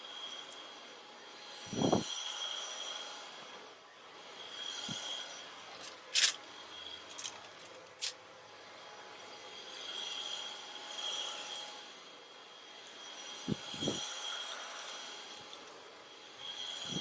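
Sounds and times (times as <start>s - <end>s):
sharp clinks: 5.7s - 8.2s.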